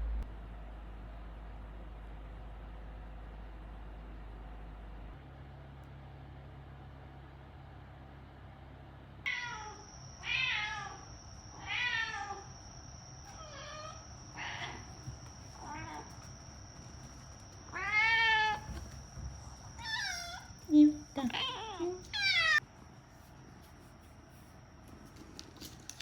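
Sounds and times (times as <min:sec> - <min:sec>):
cat meowing: 0:09.3 - 0:12.5, 0:13.3 - 0:15.0, 0:17.7 - 0:18.8, 0:19.7 - 0:22.6.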